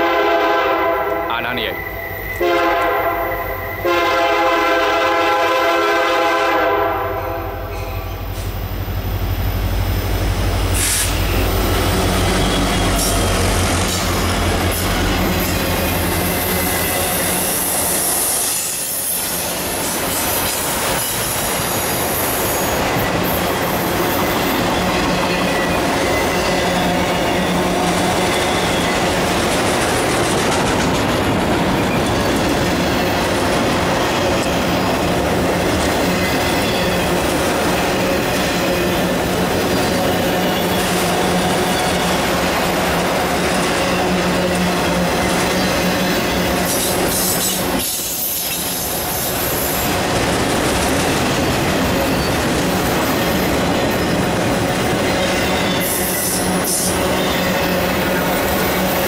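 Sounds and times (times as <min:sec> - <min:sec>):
locomotive air horn: 0:00.0 - 0:01.3, 0:02.4 - 0:07.7
high wheel squeal: 0:01.5 - 0:02.5, 0:03.1 - 0:03.9, 0:10.7 - 0:29.2, 0:37.8 - 0:42.3, 0:51.8 - 0:54.3, 0:54.9 - 0:58.8.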